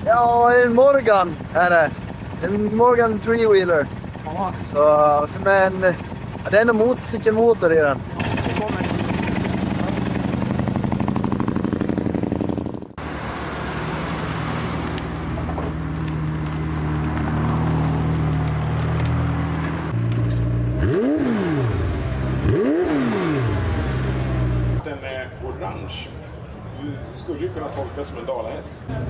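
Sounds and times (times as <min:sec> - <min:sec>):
car engines droning: 0:00.0 - 0:29.0
engine revving: 0:08.1 - 0:24.8.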